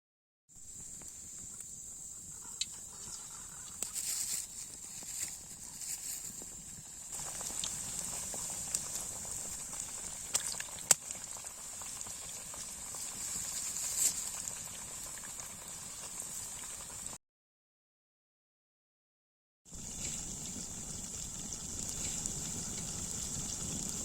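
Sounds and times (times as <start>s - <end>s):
oil sizzling around frying chicken: 0.6s - 17.2s, 19.7s - 24.0s
sharp pops of frying oil: 7.1s - 12.1s.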